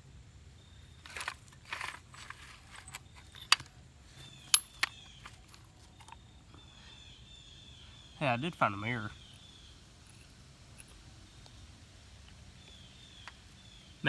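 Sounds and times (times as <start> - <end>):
rustling handling noise: 0.8 - 6.6
small hard objects clicking: 1.0 - 6.2
faint bird chirps: 4.1 - 14.0.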